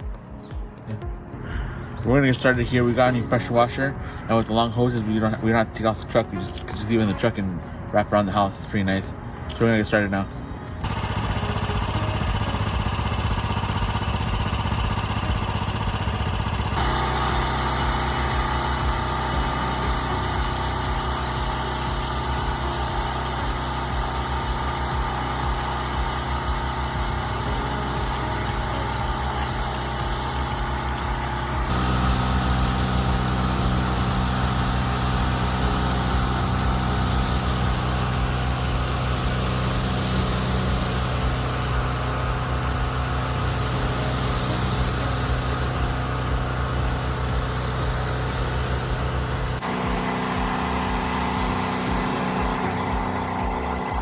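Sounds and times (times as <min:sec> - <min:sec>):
pressure washer engine running: 0:10.8 - 0:54.0.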